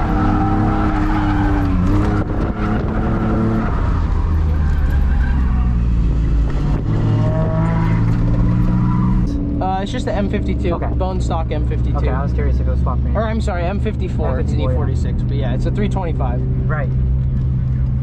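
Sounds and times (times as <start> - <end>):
car engine revving hard: 0.0 - 4.6
tyres skidding: 0.0 - 18.0.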